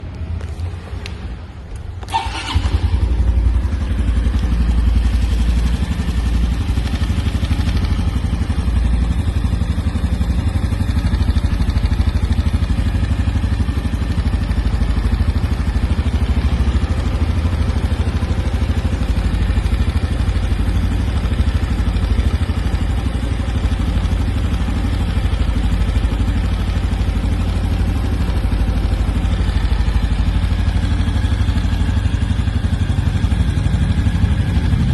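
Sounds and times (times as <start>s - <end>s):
motorcycle engine starting and idling: 0.0s - 34.9s.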